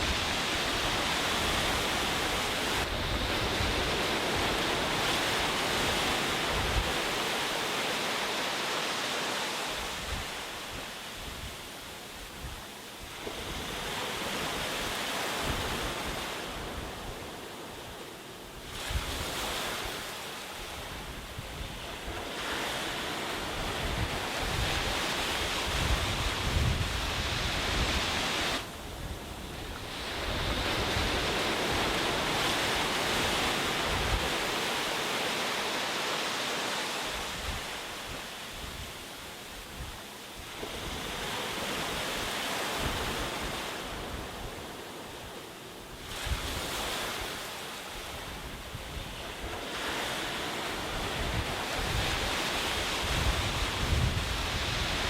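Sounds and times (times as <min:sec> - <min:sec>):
wind buffeting microphone: 0:00.0 - 0:07.3, 0:20.7 - 0:34.8, 0:50.4 - 0:55.0
sea surf washing onto beach: 0:00.0 - 0:55.0.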